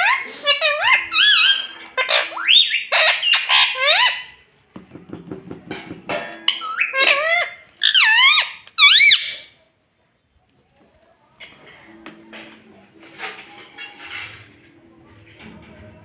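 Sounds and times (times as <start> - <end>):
parrot squawking: 0.0 - 4.4, 6.4 - 9.5.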